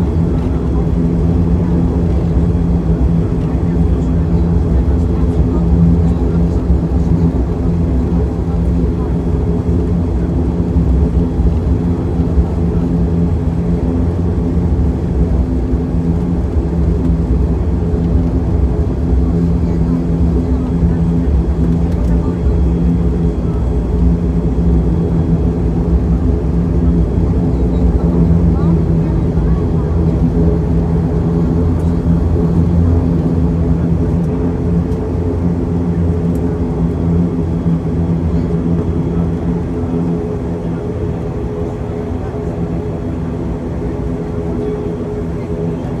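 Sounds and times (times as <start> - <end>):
turboprop engines droning in cabin: 0.0 - 46.0.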